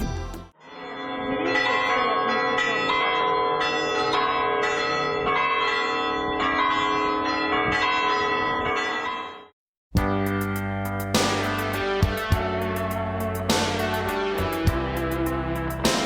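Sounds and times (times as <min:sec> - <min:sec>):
church bells ringing: 0:00.7 - 0:09.4.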